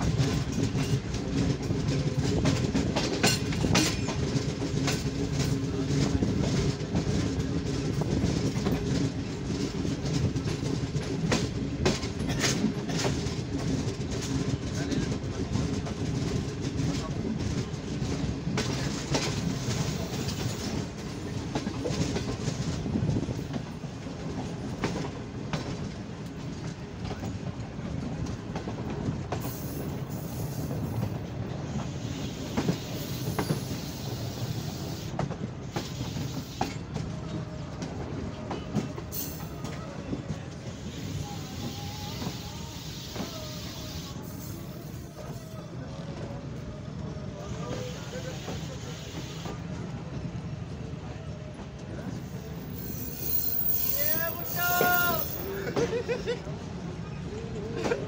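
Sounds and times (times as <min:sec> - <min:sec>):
wheels clattering over rail joints: 0:00.0 - 0:27.6, 0:52.4 - 0:56.1
train rumble: 0:00.0 - 0:58.0
wind: 0:00.0 - 0:58.0.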